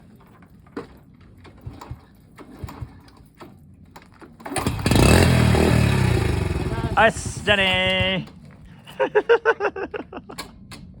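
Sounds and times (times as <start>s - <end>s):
motorcycle engine running loudly: 4.6s - 8.3s.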